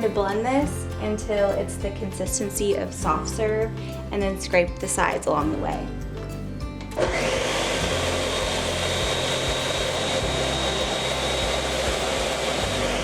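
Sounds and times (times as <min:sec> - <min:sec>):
countertop blender running: 0:07.0 - 0:13.0.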